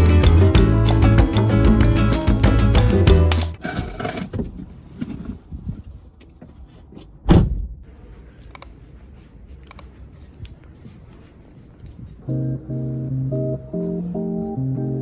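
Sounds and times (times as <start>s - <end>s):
dull thump: 7.3s - 7.8s
light clicks: 8.5s - 8.8s, 9.6s - 10.0s.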